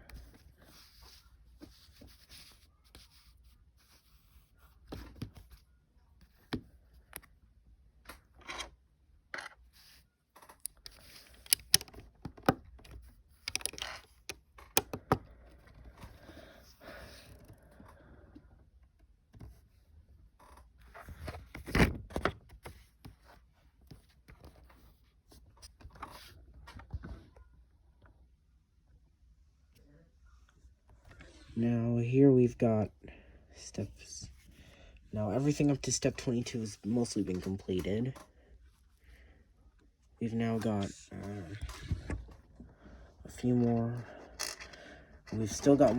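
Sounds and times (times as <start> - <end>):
plastic bricks clicking: 13.4 - 15.2.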